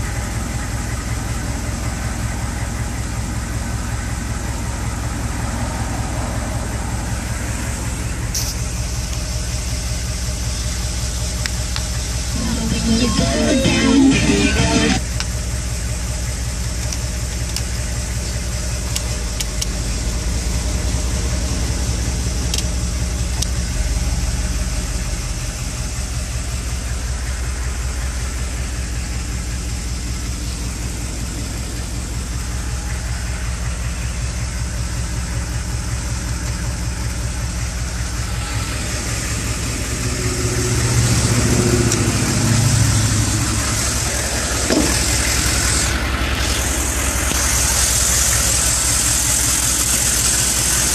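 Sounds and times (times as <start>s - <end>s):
diesel engine idling: 0.0s - 50.9s.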